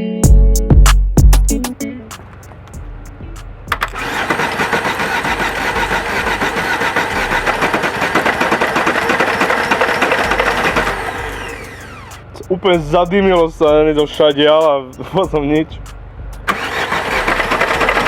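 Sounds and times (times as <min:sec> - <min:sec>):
car engine cranking: 0:01.6 - 0:18.0
starter click: 0:03.4 - 0:12.5.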